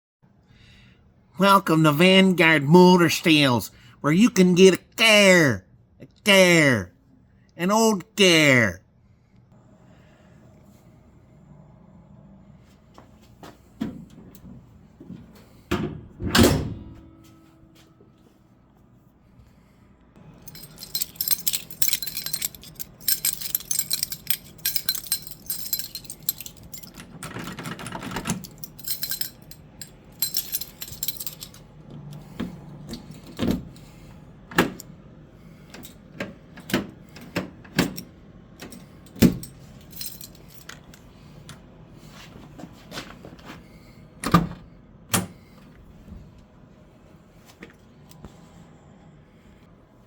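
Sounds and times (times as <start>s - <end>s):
keys jangling: 20.3s - 34.9s, 35.5s - 41.6s.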